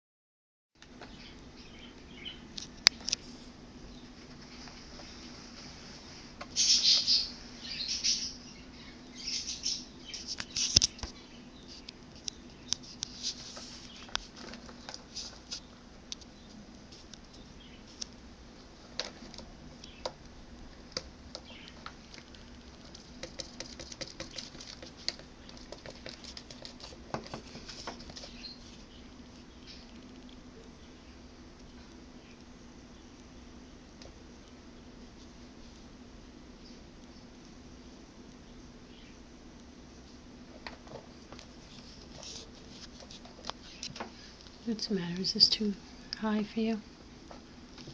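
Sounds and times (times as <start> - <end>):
small sharp taps and scratches: 20.9 - 28.8
baby birds fluttering wings: 21.4 - 29.0.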